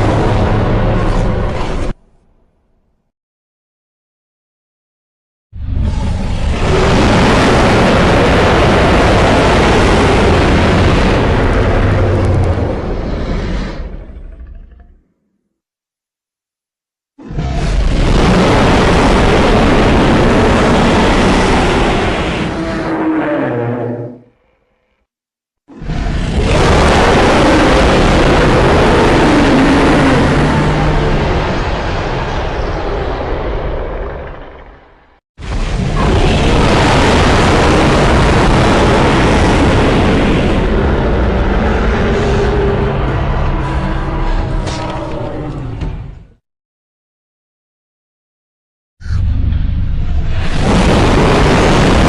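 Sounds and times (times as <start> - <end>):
monster roar: 5.8 - 15.0, 17.2 - 24.3, 25.7 - 32.3, 35.9 - 45.9.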